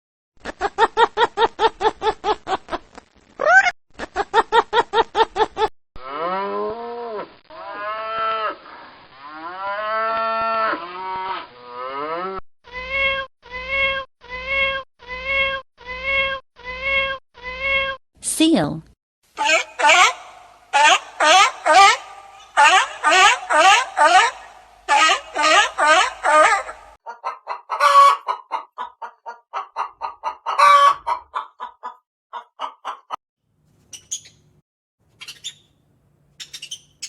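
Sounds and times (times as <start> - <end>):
long sliding animal calls: 6.2 - 11.6, 19.4 - 26.9.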